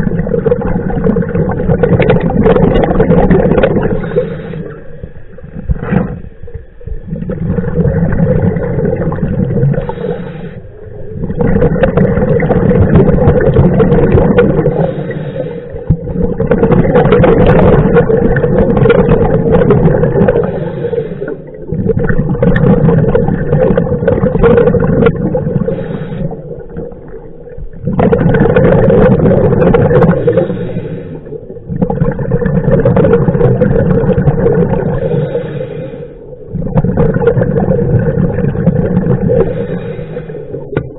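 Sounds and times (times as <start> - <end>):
exhaled bubbles underwater: 0.0 - 40.9
diver breathing through regulator: 2.0 - 6.4, 9.6 - 12.4, 14.5 - 16.5, 19.9 - 21.7, 25.4 - 27.2, 29.8 - 31.7, 34.7 - 36.5, 38.8 - 40.8.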